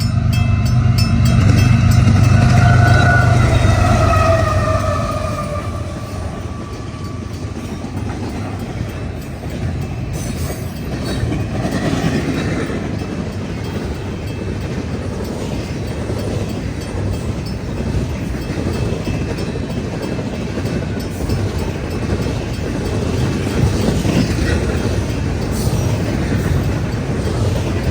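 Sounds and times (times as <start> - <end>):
freight train rumbling past: 0.0 - 27.9
locomotive horn chord: 0.9 - 7.3.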